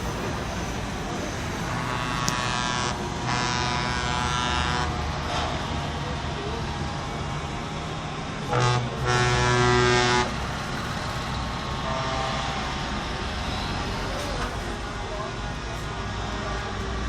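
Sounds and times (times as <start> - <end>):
truck engine and traffic rumble: 0.0 - 17.0
truck air horn blasts: 1.8 - 5.8, 8.4 - 10.4, 11.8 - 12.7.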